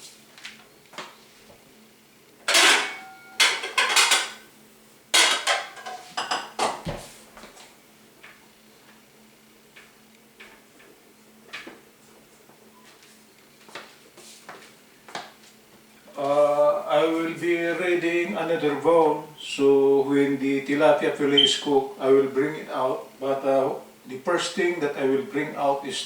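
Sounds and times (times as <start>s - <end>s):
metallic ring: 2.5s - 4.2s
pots and dishes clattering: 2.5s - 4.4s, 5.2s - 7.0s.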